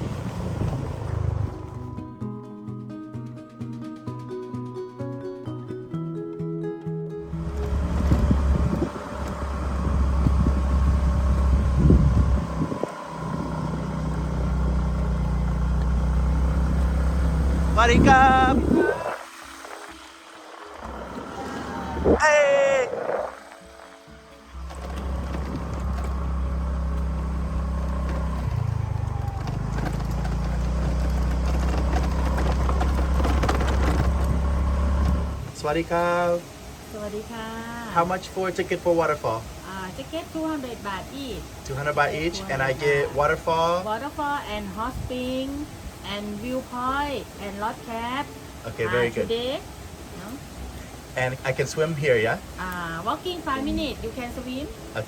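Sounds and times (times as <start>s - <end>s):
rushing wind noise: 0.0s - 1.7s, 7.3s - 14.4s, 16.5s - 26.5s
motorbike engine droning: 0.0s - 2.2s, 7.2s - 35.6s.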